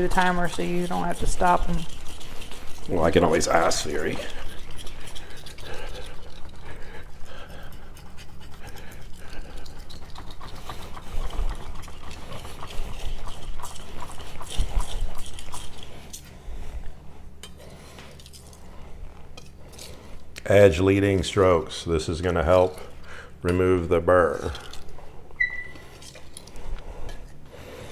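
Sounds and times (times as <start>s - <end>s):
knife scraping on whetstone: 0.0s - 10.1s.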